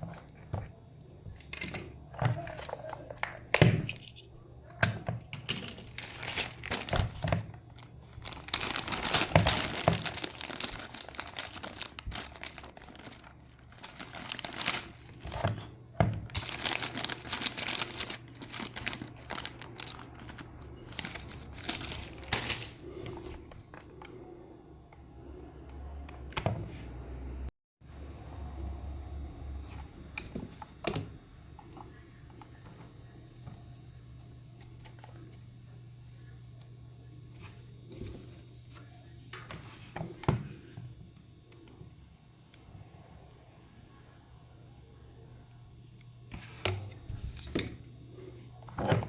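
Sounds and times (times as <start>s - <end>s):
faint low hum: 0.0s - 49.0s
material crinkling and rustling: 5.6s - 23.4s.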